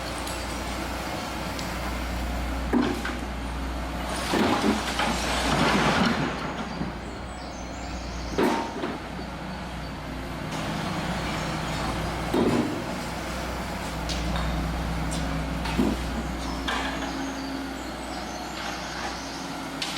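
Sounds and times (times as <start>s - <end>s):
demolition machinery engine drone: 0.0s - 19.9s
crashing grinding noise: 4.2s - 6.8s.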